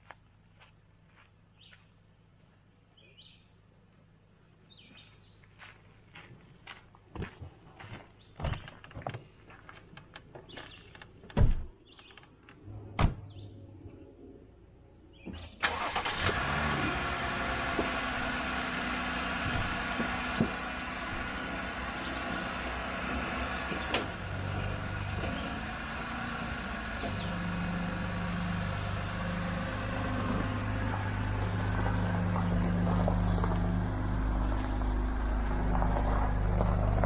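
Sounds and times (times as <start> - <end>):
car engine running: 15.6 - 37.0.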